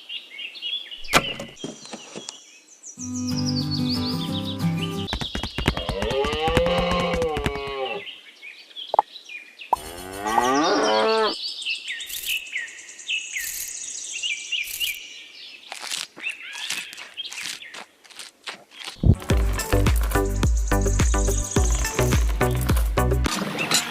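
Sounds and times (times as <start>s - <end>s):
birds chirping: 0.0s - 6.0s, 7.0s - 23.9s
cow mooing: 9.8s - 11.4s.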